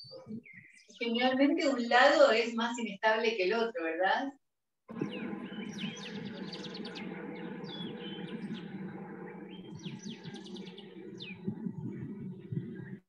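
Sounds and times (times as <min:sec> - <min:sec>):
small birds chirping: 0:00.0 - 0:01.9, 0:04.9 - 0:13.0.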